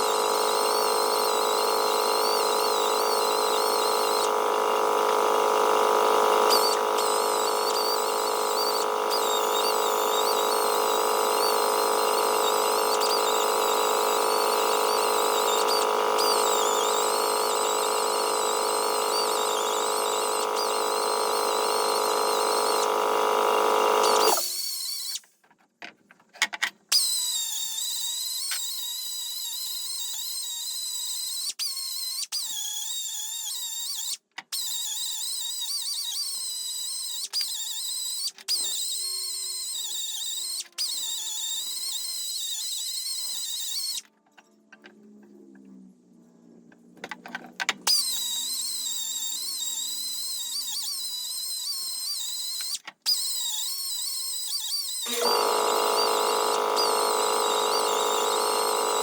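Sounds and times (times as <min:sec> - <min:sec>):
electric power tool motor whining: 0:00.0 - 0:25.2, 0:47.8 - 0:59.0.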